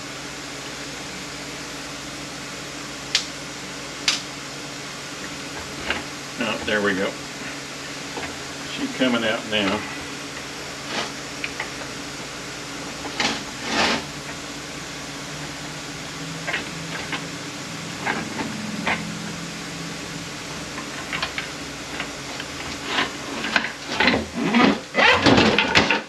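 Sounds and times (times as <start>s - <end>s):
low hum: 4.5s - 24.4s.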